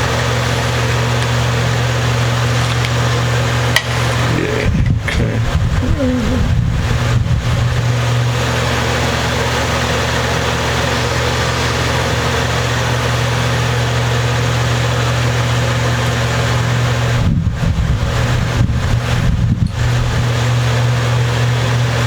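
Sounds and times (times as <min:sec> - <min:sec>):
hiss: 0:09.8 - 0:13.6.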